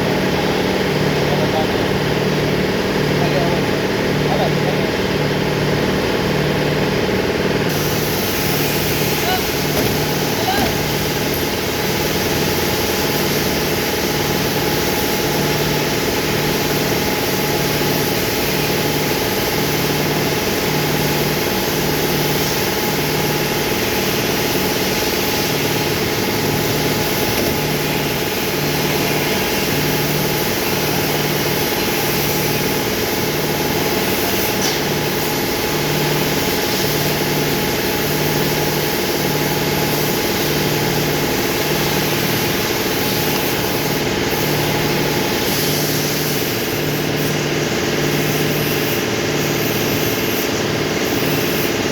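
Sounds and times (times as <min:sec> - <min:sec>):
engine idling with pulsing hum: 0:00.0 - 0:51.9.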